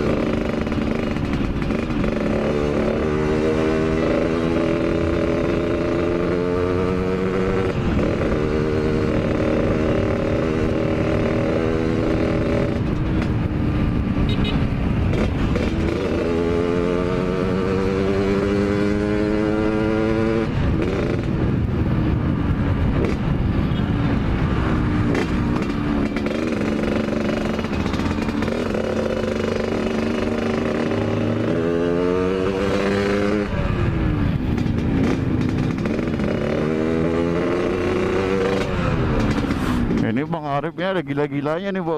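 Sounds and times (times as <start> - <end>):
two-stroke motorcycle engine revving: 0.0 - 40.3
wind noise: 2.8 - 40.5.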